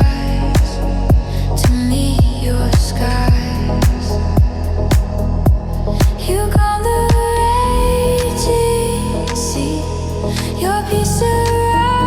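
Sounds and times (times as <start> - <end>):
kick drum beats: 0.0 - 7.3
synth chords and bass: 0.0 - 12.0.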